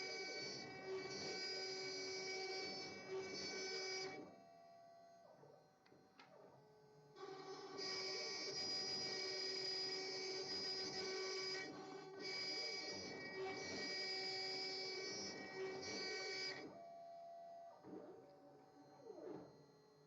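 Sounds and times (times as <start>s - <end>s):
router machine whine: 0.0s - 4.5s, 7.2s - 16.9s.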